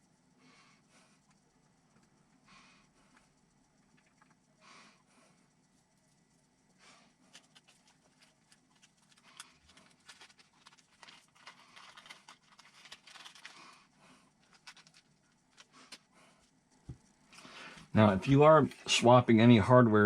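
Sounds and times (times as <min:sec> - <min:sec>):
small kit parts clicking and rustling: 0:07.3 - 0:16.1.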